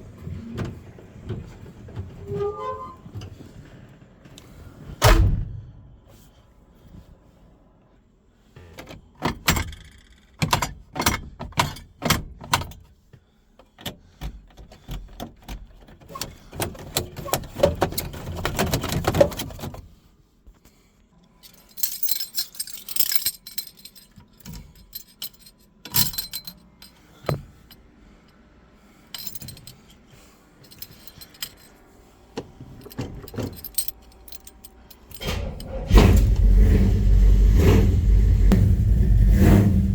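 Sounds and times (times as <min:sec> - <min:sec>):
handling clicks and knocks: 0:08.7 - 0:12.9, 0:13.6 - 0:19.8, 0:21.5 - 0:27.8, 0:29.2 - 0:35.8
car keys jangling: 0:21.4 - 0:27.8, 0:29.1 - 0:36.5.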